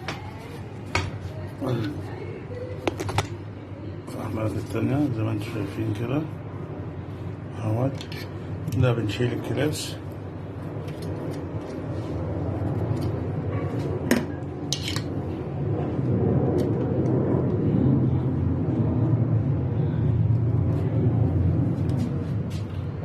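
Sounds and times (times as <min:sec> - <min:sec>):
low rumble: 0:10.1 - 0:23.0.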